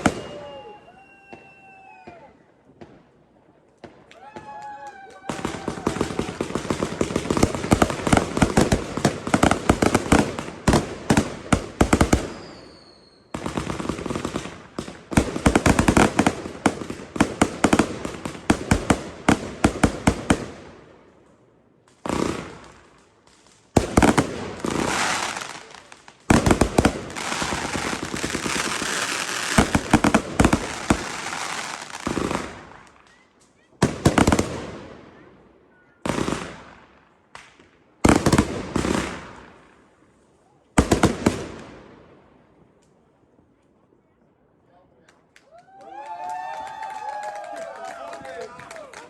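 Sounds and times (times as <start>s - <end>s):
firework whistle: 0.0s - 2.4s, 12.2s - 13.5s
fireworks bangs and crackling: 0.0s - 43.6s.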